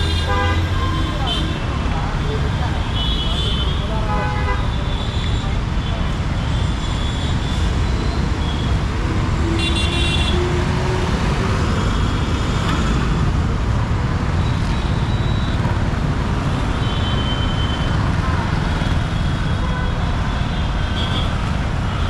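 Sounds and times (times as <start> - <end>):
vehicle horns tooting: 0.0 - 1.8, 2.8 - 10.5, 20.9 - 22.0
city road traffic rumble: 0.0 - 22.0.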